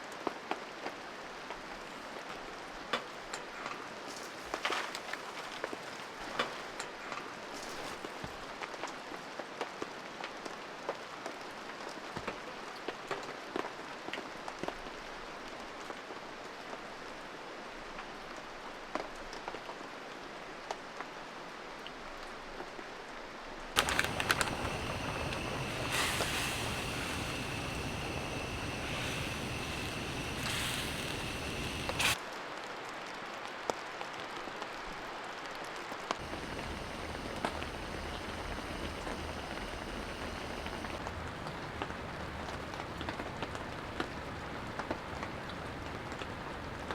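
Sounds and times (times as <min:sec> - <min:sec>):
high whistle: 0:23.8 - 0:32.2
rain falling: 0:23.8 - 0:46.9.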